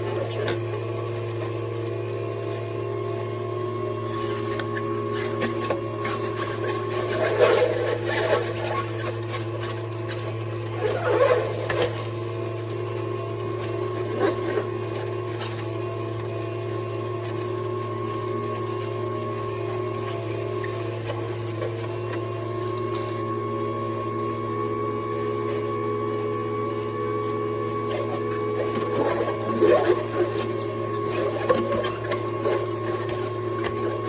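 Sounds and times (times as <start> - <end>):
juicer motor hum: 0.0 - 34.0
produce crunching and grinding: 4.1 - 23.4, 27.8 - 34.0.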